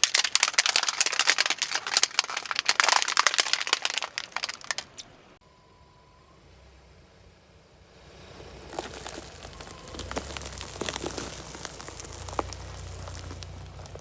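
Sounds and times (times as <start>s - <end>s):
tyre crushing brittle objects: 0.0s - 5.0s, 8.6s - 14.0s
car engine humming: 0.0s - 14.0s.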